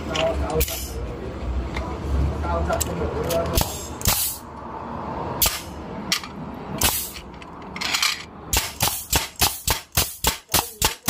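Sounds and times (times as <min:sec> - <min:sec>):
nail gun firing: 0:08.5 - 0:11.0.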